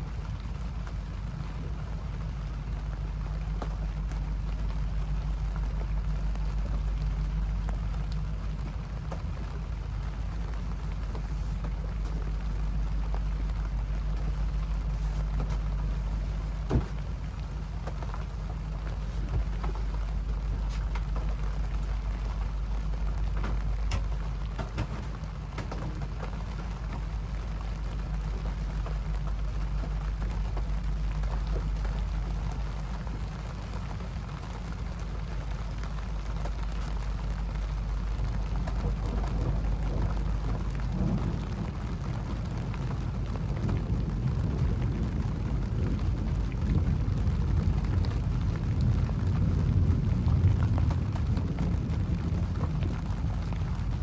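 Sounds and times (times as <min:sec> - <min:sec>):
deep steady rumble: 0:00.0 - 0:54.0
rain falling in a storm: 0:00.0 - 0:54.0.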